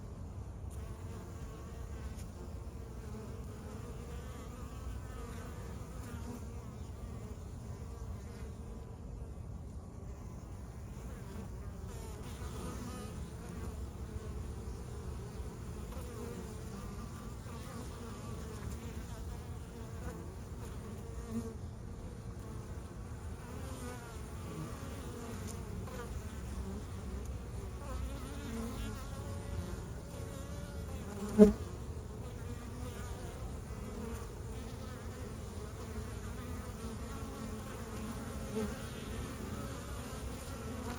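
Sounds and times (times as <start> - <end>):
honeybees buzzing: 0.0 - 40.9.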